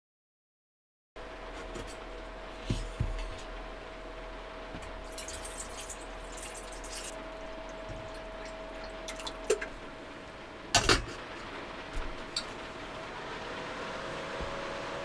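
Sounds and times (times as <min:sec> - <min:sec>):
food preparation handling noises: 0:01.3 - 0:13.2
heavy rain drumming on van roof: 0:02.0 - 0:15.0.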